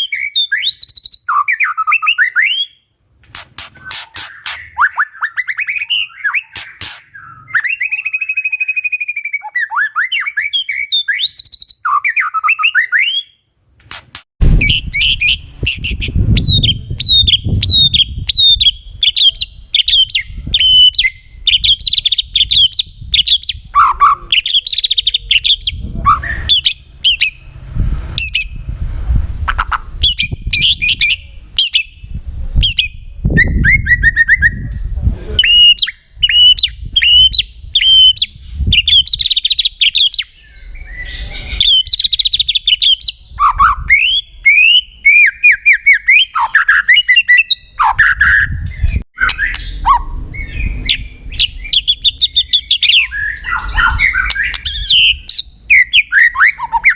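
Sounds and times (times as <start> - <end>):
bird singing whistled phrases: 0.0 - 2.8, 3.7 - 13.4, 14.6 - 27.4, 35.4 - 56.9
bird chattering notes: 3.3 - 13.1, 13.9 - 27.4, 29.5 - 31.9
low rumble: 25.8 - 30.6.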